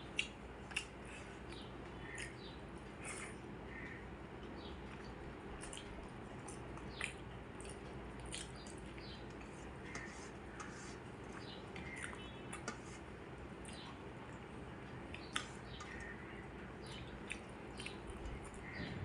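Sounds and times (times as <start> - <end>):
wet chewing: 0.0 - 3.4, 4.4 - 16.2, 16.8 - 18.8
low background hum: 0.0 - 19.0
lip smacks and mouth clicks: 0.1 - 2.5, 4.9 - 9.5, 15.1 - 16.0, 17.2 - 18.6.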